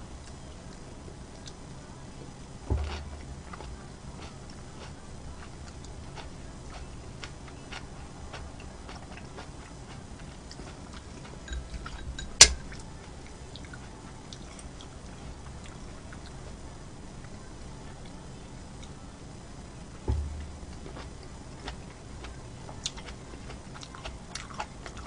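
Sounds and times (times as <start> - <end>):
wet chewing: 2.2 - 16.4, 20.1 - 25.0
sharp loud knock: 20.1 - 21.0.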